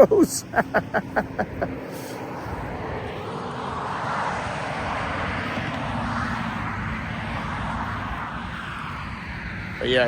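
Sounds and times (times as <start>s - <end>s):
road vehicle hiss: 0.0s - 10.0s.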